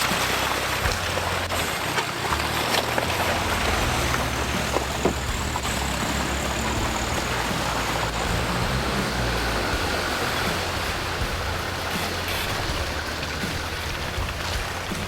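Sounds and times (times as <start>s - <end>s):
car engine running low: 0.0s - 15.0s.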